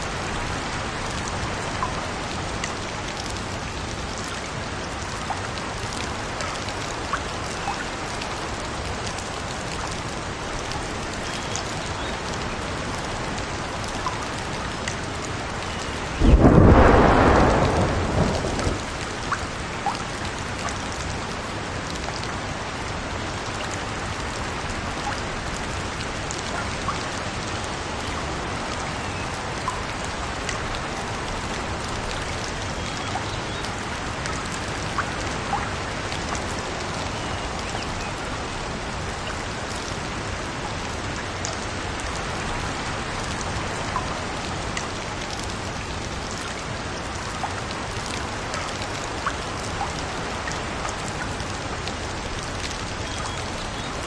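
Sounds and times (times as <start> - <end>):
steady rain: 0.0 - 54.0
thunderclap: 16.2 - 19.2.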